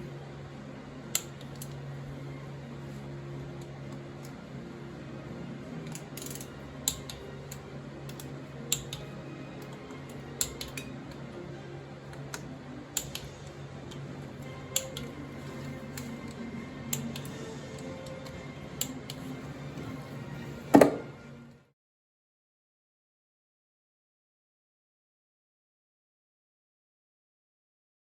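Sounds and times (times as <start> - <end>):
steady low hum: 0.0 - 21.5.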